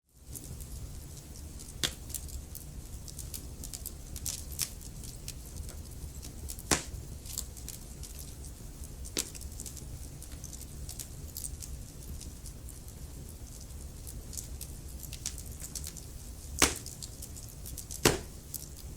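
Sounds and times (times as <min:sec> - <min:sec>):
wood fire crackling: 0:00.2 - 0:18.9
loud fire pops: 0:06.4 - 0:07.1, 0:16.6 - 0:17.1, 0:17.9 - 0:18.5.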